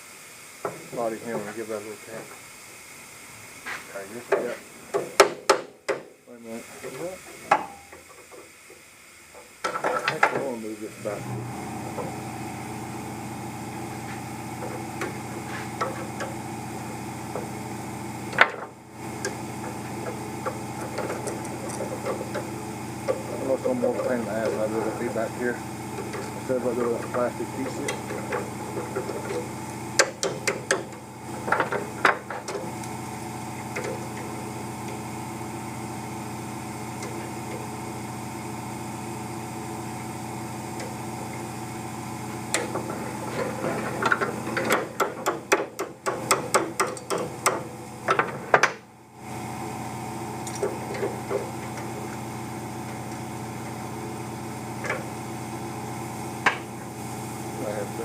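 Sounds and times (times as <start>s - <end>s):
steady hum: 0.0s - 58.0s
hammer tapping on metal: 30.0s - 30.9s, 44.1s - 48.8s.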